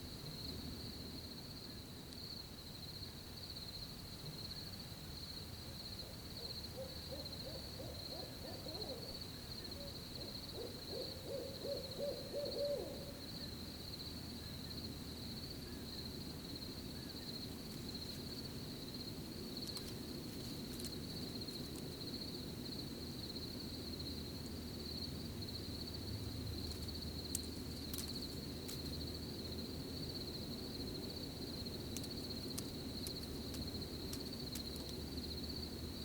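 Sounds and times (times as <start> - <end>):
crickets chirping: 0.0 - 36.0
low night air rumble: 0.0 - 36.0
owl hooting: 6.0 - 13.5.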